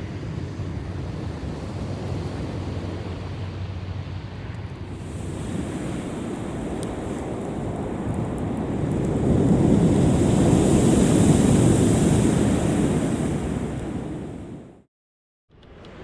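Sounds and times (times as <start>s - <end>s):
wind on microphone: 4.8s - 14.8s
ocean surf washing on beach: 4.9s - 14.8s.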